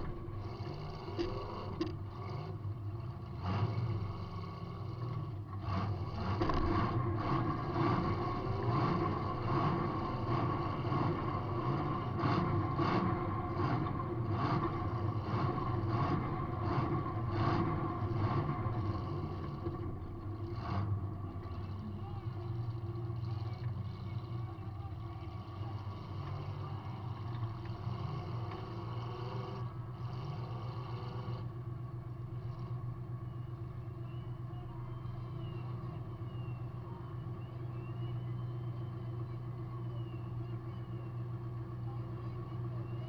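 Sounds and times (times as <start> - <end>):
clanks and rattles of car body: 0.0 - 2.1
car engine running: 0.0 - 43.0.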